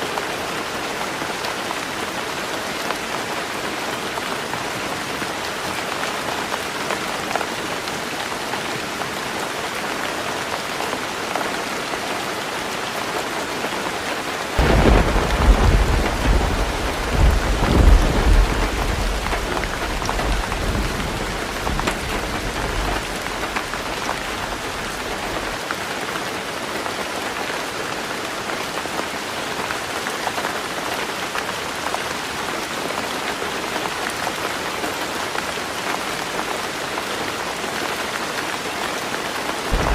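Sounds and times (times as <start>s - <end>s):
heavy rain on a tin roof: 0.0s - 39.9s
thunder clap rolling: 14.6s - 25.6s.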